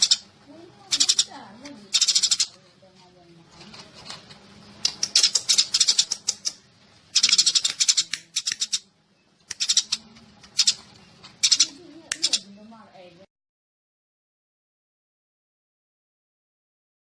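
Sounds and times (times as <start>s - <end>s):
sparrows chirping: 0.0s - 2.6s, 4.8s - 13.1s.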